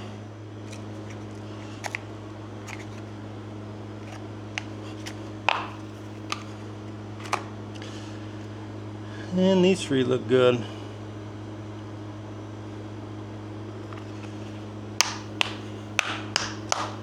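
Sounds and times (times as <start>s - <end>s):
low electrical hum: 0.0s - 17.0s
hands clicking battery caps: 0.7s - 3.0s, 4.0s - 6.5s, 15.0s - 17.0s.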